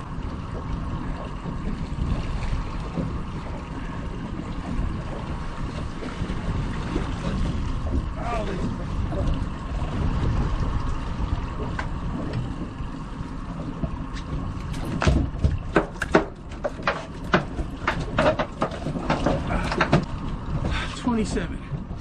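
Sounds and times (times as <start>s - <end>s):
boat motor rumble: 0.0s - 22.0s
wind: 0.0s - 22.0s
fish knocking and slapping: 13.5s - 20.9s.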